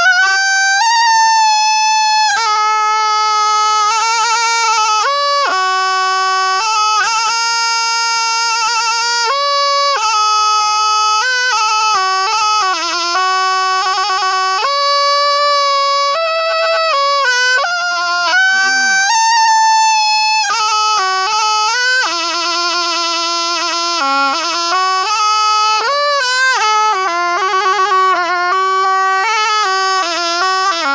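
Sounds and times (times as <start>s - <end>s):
oboe playing solo melody: 0.0s - 5.6s, 12.9s - 22.9s.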